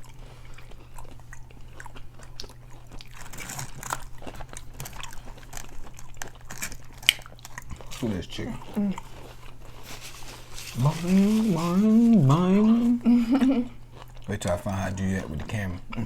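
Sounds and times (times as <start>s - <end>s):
crunchy food being chewed: 0.0s - 16.0s
steady low hum: 0.0s - 16.0s
mouth sounds: 10.7s - 13.8s.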